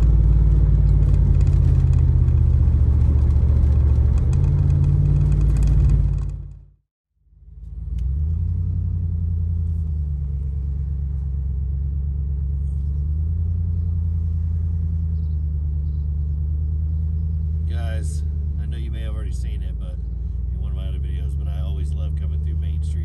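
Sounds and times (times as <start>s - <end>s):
truck engine rumbling: 0.0s - 23.0s.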